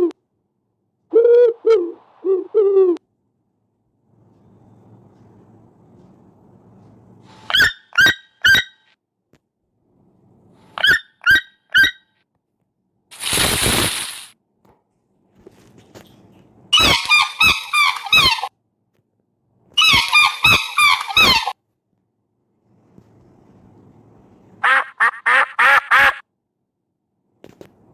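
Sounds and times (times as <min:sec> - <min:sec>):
squeaky honking bird calls: 0:07.5 - 0:08.9, 0:10.8 - 0:12.0, 0:16.8 - 0:18.5, 0:19.8 - 0:21.6
noisy hiss-like burst: 0:13.1 - 0:14.4.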